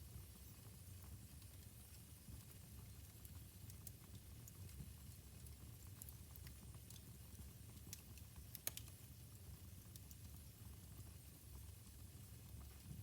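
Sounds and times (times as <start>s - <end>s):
wood fire crackling: 2.4s - 9.0s.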